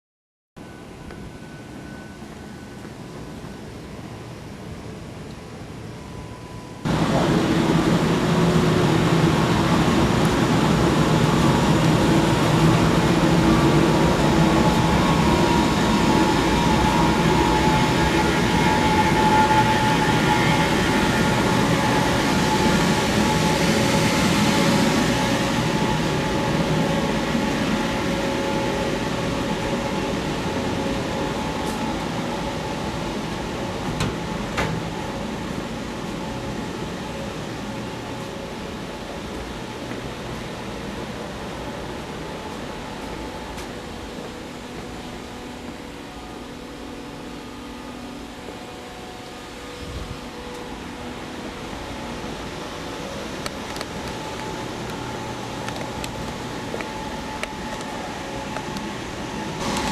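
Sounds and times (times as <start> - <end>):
machinery rumble and hiss: 0.6 - 59.9
steady hum tones: 0.6 - 59.9.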